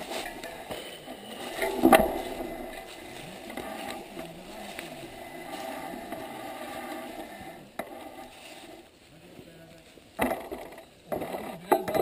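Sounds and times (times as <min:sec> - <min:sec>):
bicycle tyre riding noise: 0:00.0 - 0:11.8.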